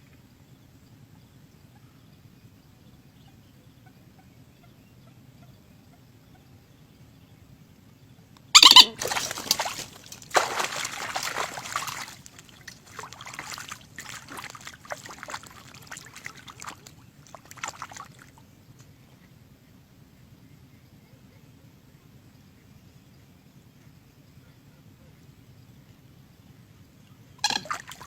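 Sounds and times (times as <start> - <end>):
water splashing and sloshing: 8.6 - 18.5, 27.4 - 28.0.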